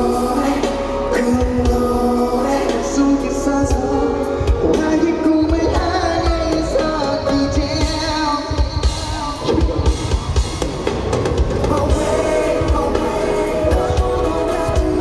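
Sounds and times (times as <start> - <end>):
drum kit beat: 0.0 - 15.0
live pop band music: 0.0 - 15.0.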